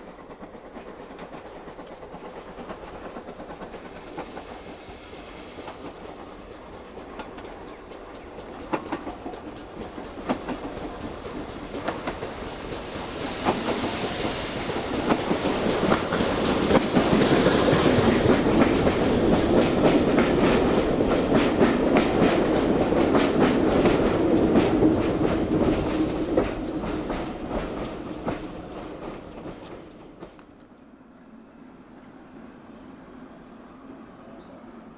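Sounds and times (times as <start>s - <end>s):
steam train passing: 0.0s - 34.9s
wheels clattering over rail joints: 5.6s - 30.8s.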